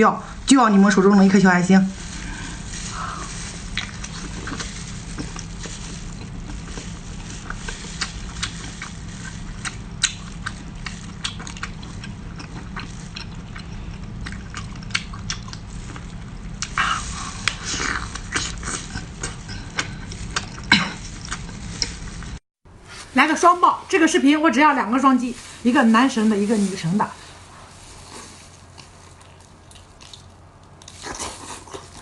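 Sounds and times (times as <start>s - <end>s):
low steady hum: 0.0s - 32.0s
person chewing food: 2.0s - 22.4s, 28.0s - 32.0s.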